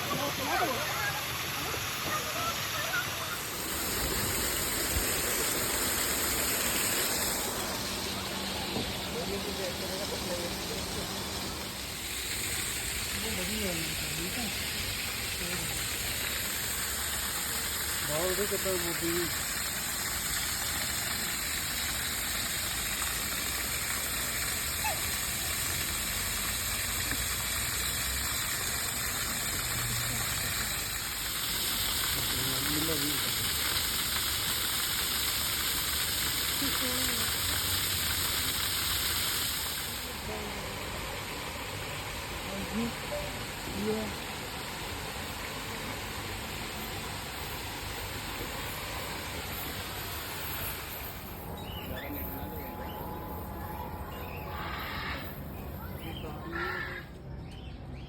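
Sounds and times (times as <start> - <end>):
waterfall rushing: 0.0 - 35.5
high even hiss: 0.0 - 57.2
faint chirp: 51.0 - 56.8.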